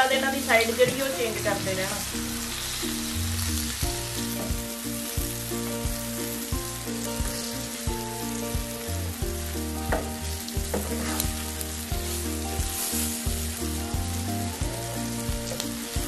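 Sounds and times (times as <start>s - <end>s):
okra sizzling in oil: 0.0s - 16.0s
spatula scraping a pan: 10.7s - 12.2s.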